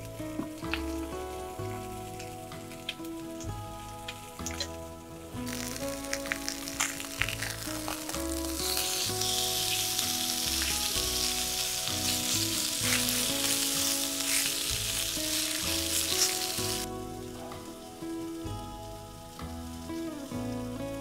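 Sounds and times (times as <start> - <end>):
rain on tent fabric: 0.0 - 21.0
soft background music: 0.0 - 21.0.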